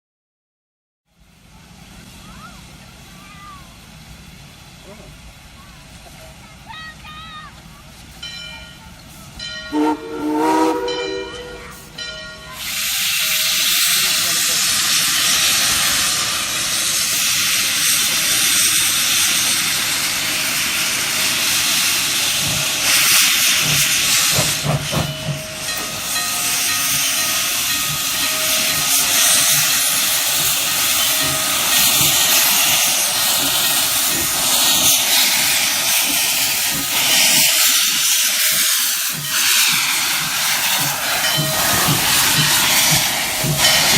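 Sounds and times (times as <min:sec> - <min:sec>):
steam hissing: 0:09.0 - 0:43.9
steam locomotive whistle: 0:09.7 - 0:12.0, 0:36.4 - 0:43.9.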